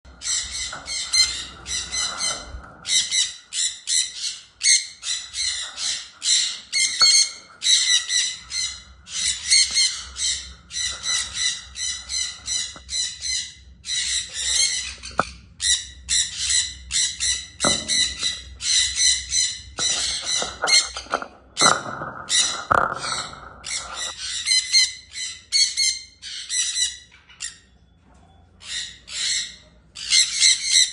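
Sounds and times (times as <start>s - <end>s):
parrot squawking: 0.2s - 21.1s, 28.6s - 30.9s.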